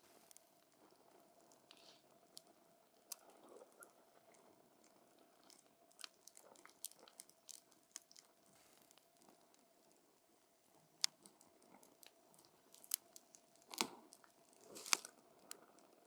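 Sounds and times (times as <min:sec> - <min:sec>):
campfire crackling: 0:10.8 - 0:15.9.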